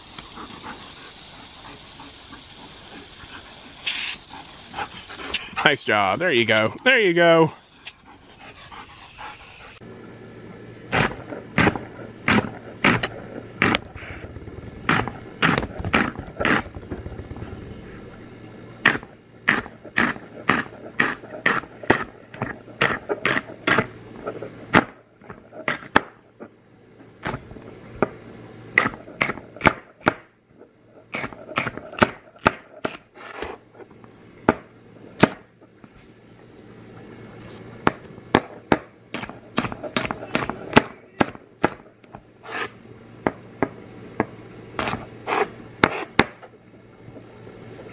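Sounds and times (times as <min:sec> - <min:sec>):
knife chopping celery on stone: 0:10.9 - 0:13.8, 0:14.9 - 0:16.8, 0:18.8 - 0:23.9, 0:25.6 - 0:26.1, 0:28.8 - 0:30.2, 0:31.1 - 0:33.6, 0:38.4 - 0:41.8, 0:44.8 - 0:46.4.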